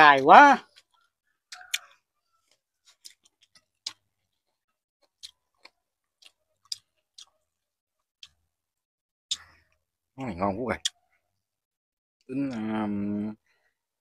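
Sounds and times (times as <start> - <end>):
person chewing: 0.6 - 8.4.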